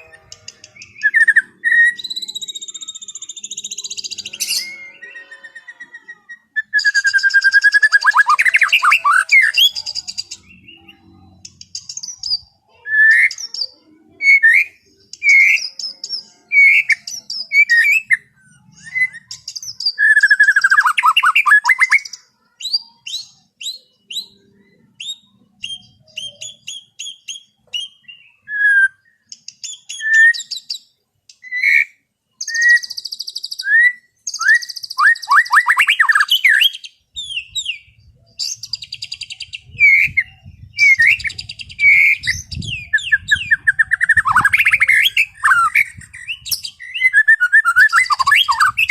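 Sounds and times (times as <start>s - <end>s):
bird singing whistled notes: 0.0s - 48.9s
rapid bird chatter: 34.2s - 48.9s.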